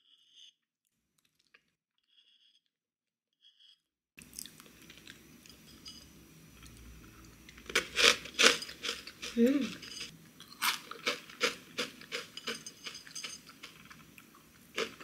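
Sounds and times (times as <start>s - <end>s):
chewing crunchy granola: 7.5s - 15.0s.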